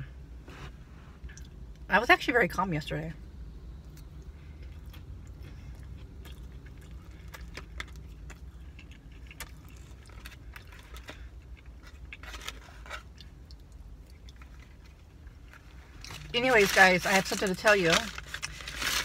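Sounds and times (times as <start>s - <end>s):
low steady hum: 0.0s - 19.0s
person chewing: 3.8s - 16.2s.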